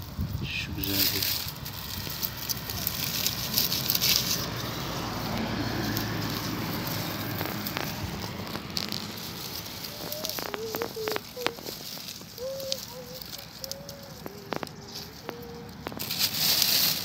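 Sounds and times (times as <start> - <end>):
dry undergrowth rustling: 0.0 - 17.0.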